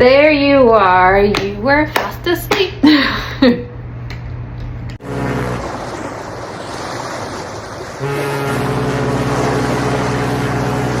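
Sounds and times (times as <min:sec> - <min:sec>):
train horn blast: 0:05.0 - 0:06.3, 0:07.9 - 0:11.0.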